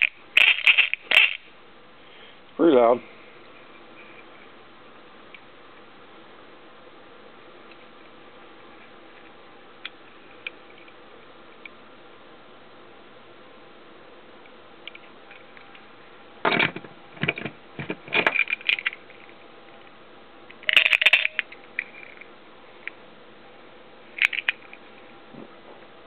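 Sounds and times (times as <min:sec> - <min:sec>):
metallic clinks and rattles: 0:00.0 - 0:01.4, 0:18.2 - 0:19.3, 0:20.6 - 0:22.3, 0:24.1 - 0:24.8.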